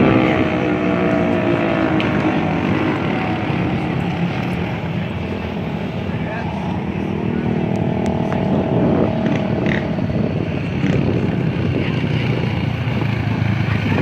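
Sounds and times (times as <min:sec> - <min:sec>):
din of other bikes: 0:00.0 - 0:14.0
dirt bike engine: 0:00.0 - 0:14.0.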